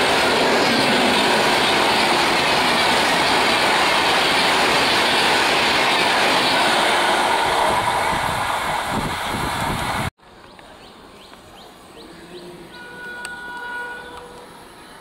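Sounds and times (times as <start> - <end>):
train wheels on rails: 0.0 - 10.1.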